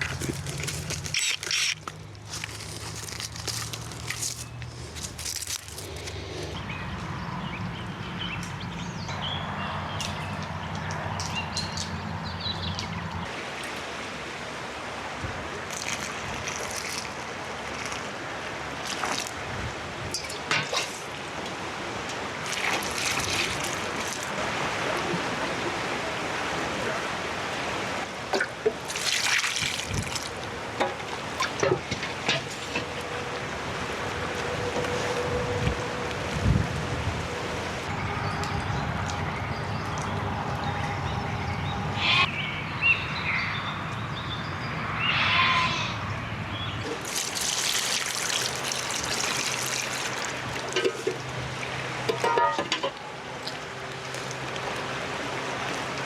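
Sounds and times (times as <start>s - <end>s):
water running and trickling: 0.0s - 6.4s, 9.8s - 34.8s, 46.9s - 56.0s
low hum: 37.3s - 46.9s.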